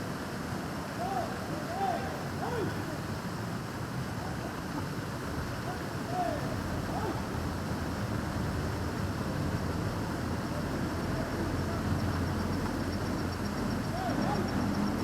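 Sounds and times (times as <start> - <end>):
fountain water splashing: 0.0 - 15.0
passing traffic rumble: 4.5 - 15.0
faint rapid ticking: 7.4 - 15.0.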